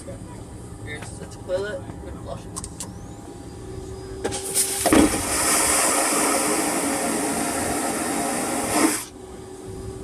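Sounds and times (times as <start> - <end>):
vacuum toilet flushing whoosh: 4.4 - 9.1.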